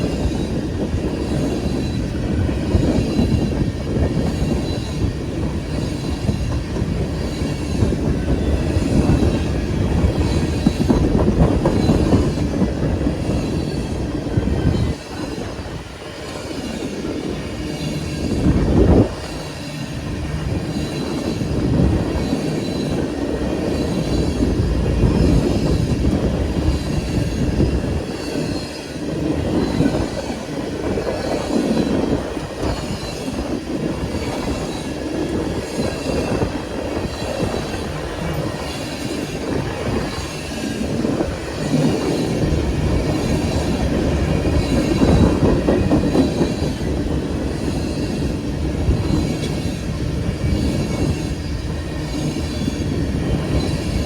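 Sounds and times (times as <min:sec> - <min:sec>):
freight train wheels rumbling: 0:00.0 - 0:54.0
train wheel squeal: 0:00.0 - 0:54.0.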